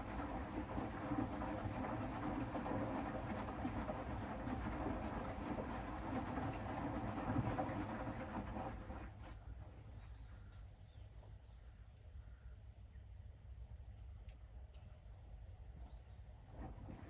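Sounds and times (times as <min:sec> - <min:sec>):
washing machine drum rumble: 0:00.0 - 0:09.3, 0:16.5 - 0:17.0.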